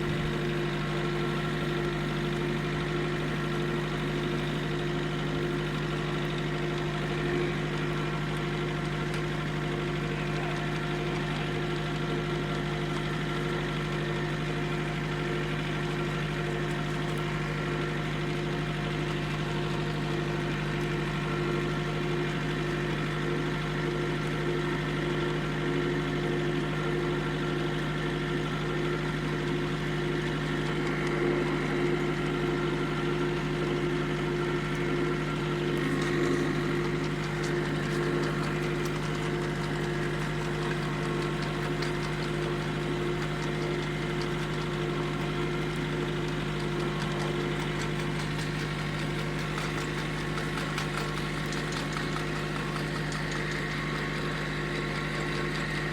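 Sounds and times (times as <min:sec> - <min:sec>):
engine running steadily: 0:00.0 - 0:55.9.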